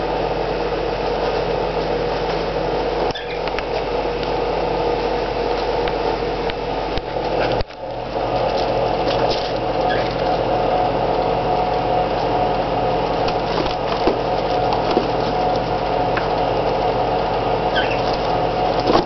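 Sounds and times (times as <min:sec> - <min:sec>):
steady mechanical hum: 0:00.0 - 0:19.0
faint high squeak: 0:03.1 - 0:03.5, 0:09.8 - 0:10.2, 0:17.7 - 0:18.2.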